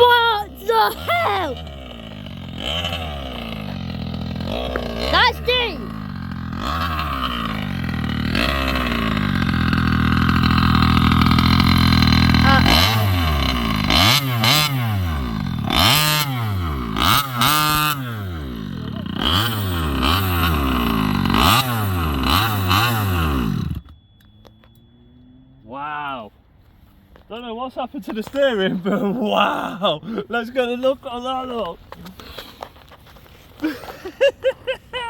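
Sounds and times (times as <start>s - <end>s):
two-stroke engine revving: 0.0s - 25.8s.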